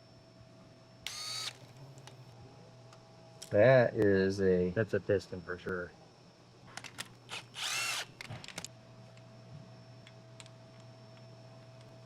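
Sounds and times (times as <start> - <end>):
power tool whirring: 1.0 - 1.7, 7.3 - 8.4.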